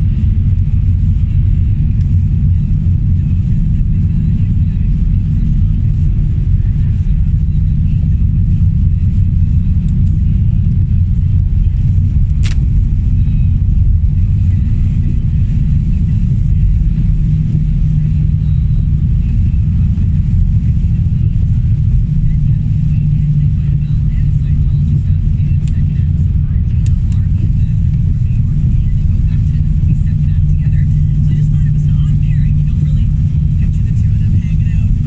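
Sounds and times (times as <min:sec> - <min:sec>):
car engine and road noise: 0:00.0 - 0:35.0
sharp click: 0:12.3 - 0:12.7.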